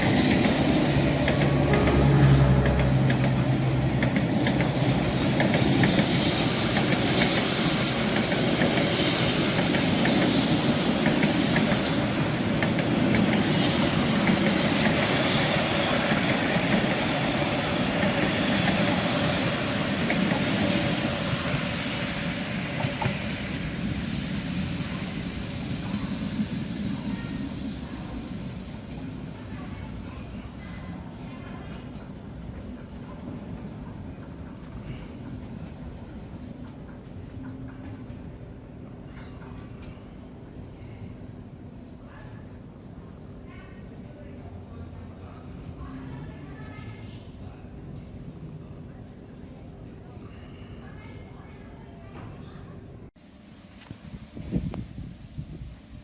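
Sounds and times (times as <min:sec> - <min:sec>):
locomotive engine hum: 0:00.0 - 0:08.9
train wheels clicking over rail joints: 0:00.0 - 0:23.8.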